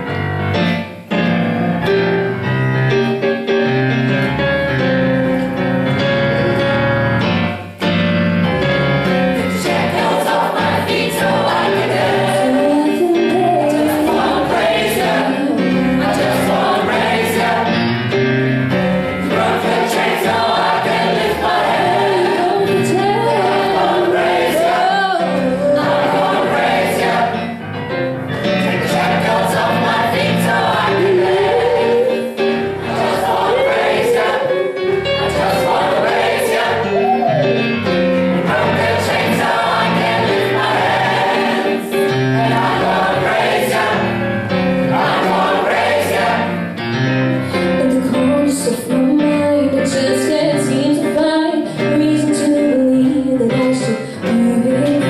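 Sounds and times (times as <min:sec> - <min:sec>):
instrumental accompaniment: 0:00.0 - 0:55.0
choir singing gospel: 0:08.3 - 0:49.0.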